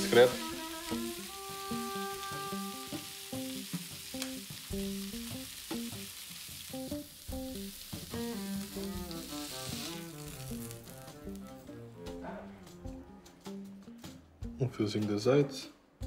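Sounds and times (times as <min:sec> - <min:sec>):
background music of short notes: 0:00.0 - 0:05.9
skewers sizzling on a grill pan: 0:00.0 - 0:11.5.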